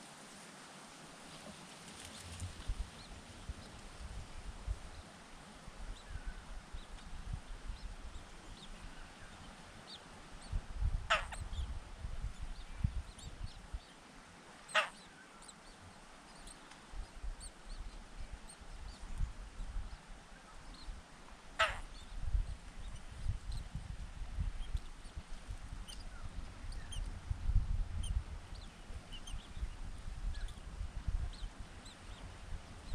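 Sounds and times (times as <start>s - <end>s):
birds harsh calls: 11.1s - 11.6s, 14.7s - 15.2s, 21.6s - 22.2s.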